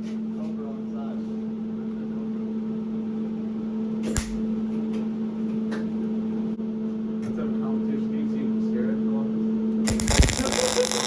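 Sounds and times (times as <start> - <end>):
steady machine hum: 0.0 - 11.0
sharp click: 4.1 - 4.4.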